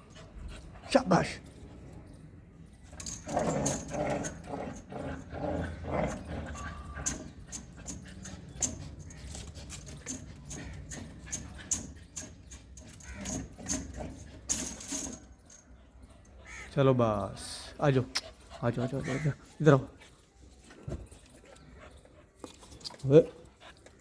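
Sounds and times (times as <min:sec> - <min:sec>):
dog panting: 0:00.0 - 0:01.6, 0:03.1 - 0:14.7, 0:17.8 - 0:24.0
sharp clicks and clinks: 0:02.8 - 0:15.8.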